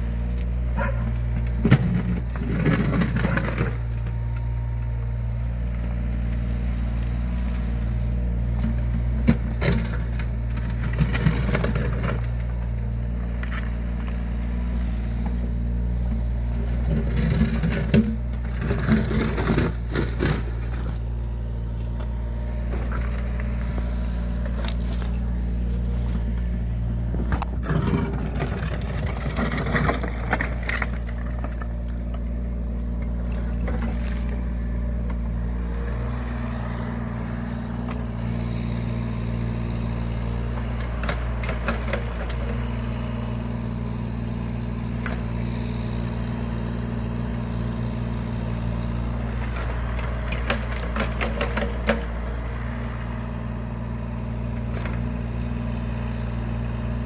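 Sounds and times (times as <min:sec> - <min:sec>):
diesel engine running: 0:00.0 - 0:57.0
excavator clatter and knocks: 0:00.1 - 0:36.5, 0:37.4 - 0:45.5, 0:46.5 - 0:53.0, 0:54.4 - 0:55.8.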